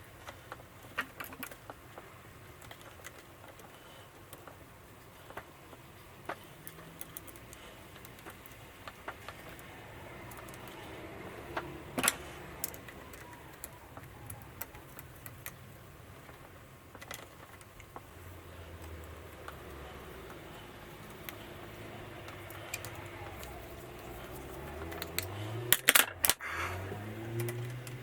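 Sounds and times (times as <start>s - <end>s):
small metal parts handled: 6.3s - 10.9s, 18.8s - 26.4s.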